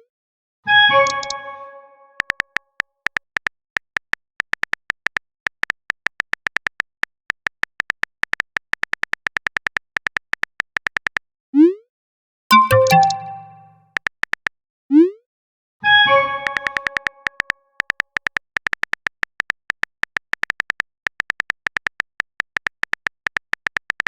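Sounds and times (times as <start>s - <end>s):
message sent pop: 12.5s - 13.7s
phone keyboard typing clicks: 12.5s - 13.7s, 16.4s - 24.0s.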